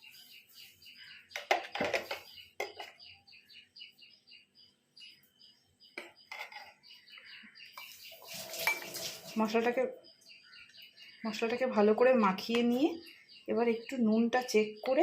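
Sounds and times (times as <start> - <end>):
bird chirping: 0.0 - 15.0
utensil clinking against bowl: 8.5 - 9.2.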